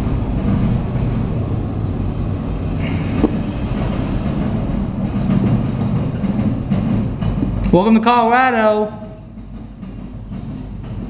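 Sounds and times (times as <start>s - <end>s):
boxcars rumbling over rails: 0.0s - 11.0s
diesel locomotive engine: 0.0s - 11.0s.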